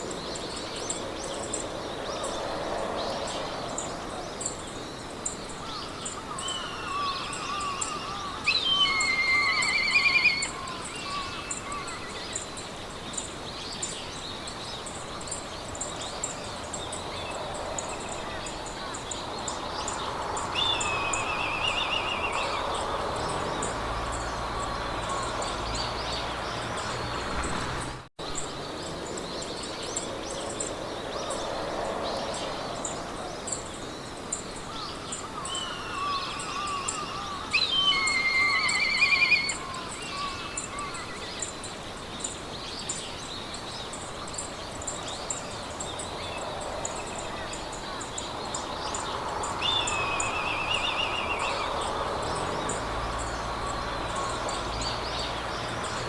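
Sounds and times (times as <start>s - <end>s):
wind in grass: 0.0s - 56.0s
songbirds singing trilled phrases: 5.2s - 27.3s, 34.9s - 56.0s.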